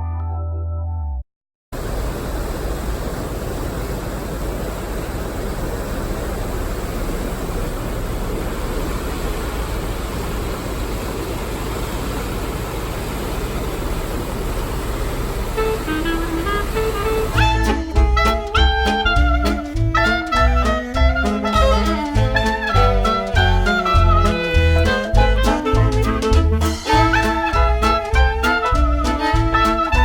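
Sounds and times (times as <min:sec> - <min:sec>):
city road traffic rumble: 0:01.8 - 0:30.0.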